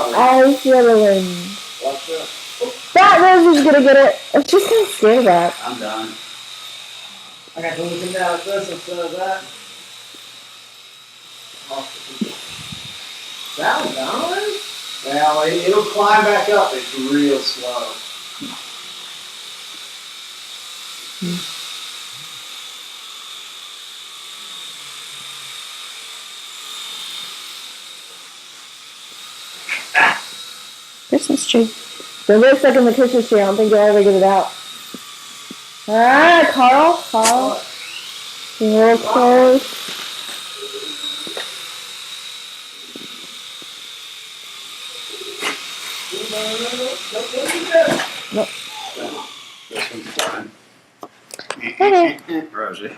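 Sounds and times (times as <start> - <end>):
model airplane motor whining: 0.0 - 50.5.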